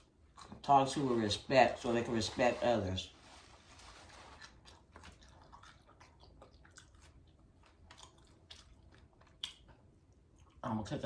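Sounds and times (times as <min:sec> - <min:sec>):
person chewing food: 0:00.0 - 0:00.7, 0:03.8 - 0:10.6.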